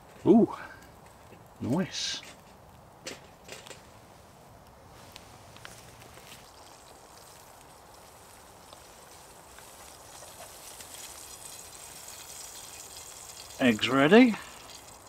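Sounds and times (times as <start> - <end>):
eggs sizzling in a pan: 5.6 - 15.0.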